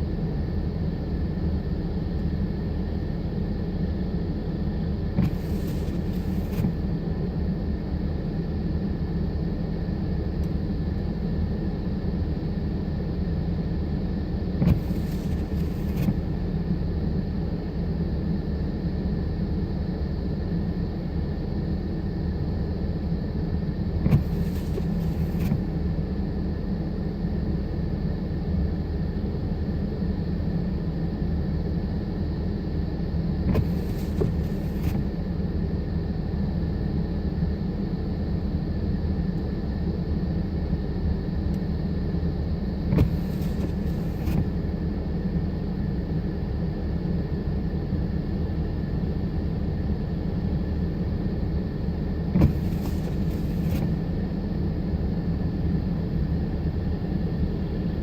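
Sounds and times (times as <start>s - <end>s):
low vehicle rumble: 33.3s - 35.5s, 49.9s - 58.0s.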